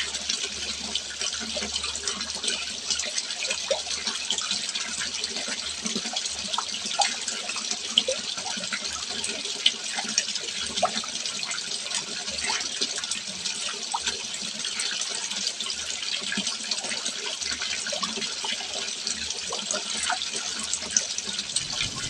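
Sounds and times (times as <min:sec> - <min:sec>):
water trickling into a pond: 0:00.0 - 0:22.0
small bubbly plinks: 0:21.5 - 0:22.0.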